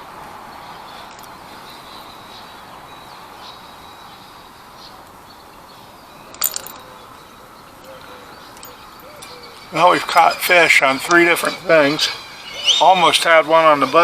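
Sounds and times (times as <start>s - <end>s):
outdoor background hiss: 0.0s - 14.0s
sharp clatter of clicks: 6.3s - 6.8s.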